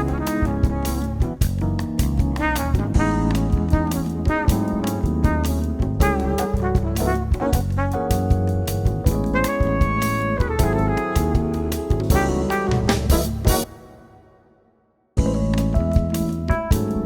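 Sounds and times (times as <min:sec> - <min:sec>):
upbeat jazz music with brass: 0:00.0 - 0:14.2, 0:15.2 - 0:17.0.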